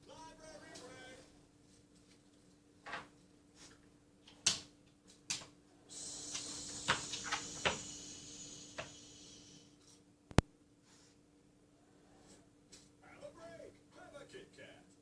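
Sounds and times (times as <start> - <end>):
steady hiss: 5.7 - 10.0.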